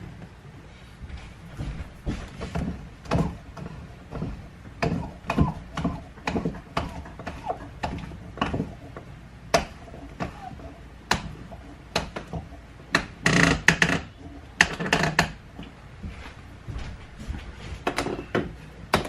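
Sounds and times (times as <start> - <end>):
wooden boards and clamps knocking: 1.7 - 15.4, 17.8 - 19.0.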